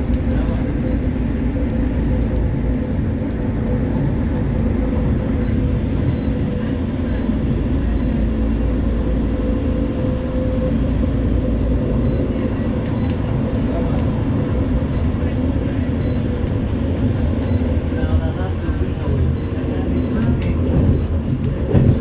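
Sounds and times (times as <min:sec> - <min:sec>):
steady whine: 0:00.0 - 0:22.0
tram wheels rumbling on rails: 0:00.0 - 0:22.0.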